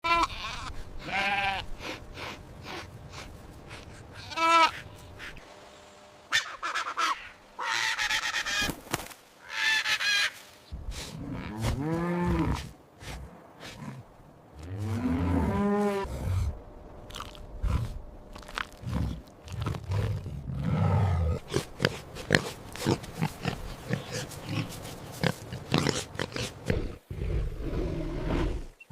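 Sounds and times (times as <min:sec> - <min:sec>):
long arching animal calls: 0:06.3 - 0:08.7.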